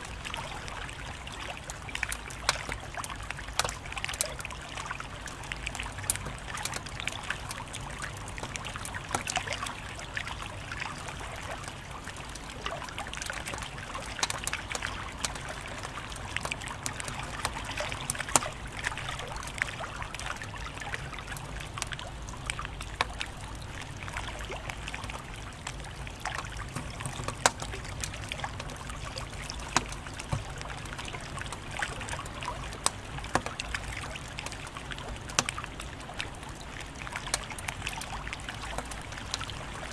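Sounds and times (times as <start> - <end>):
wood fire crackling and popping: 5.2 - 9.7, 10.9 - 20.5, 21.1 - 35.8.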